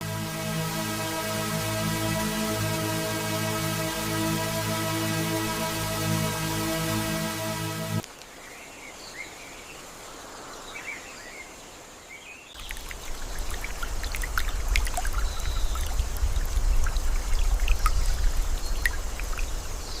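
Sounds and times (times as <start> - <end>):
electronic music: 0.0 - 8.0
birds chirping: 12.2 - 20.0
water dripping: 12.6 - 20.0
low rumble: 12.8 - 20.0.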